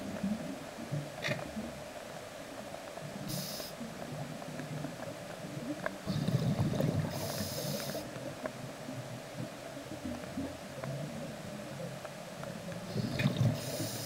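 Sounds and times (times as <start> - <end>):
regulator hissing inhale: 3.3 - 3.8, 7.0 - 8.0, 12.9 - 14.0
exhaled air bubbling: 6.0 - 8.2, 12.8 - 14.0.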